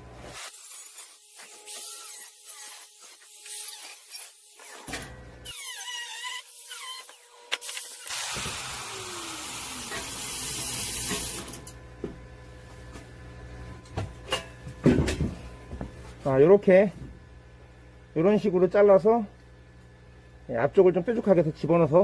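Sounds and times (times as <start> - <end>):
power tool cutting steel: 0.4 - 11.6
power tool squeals: 5.4 - 8.1.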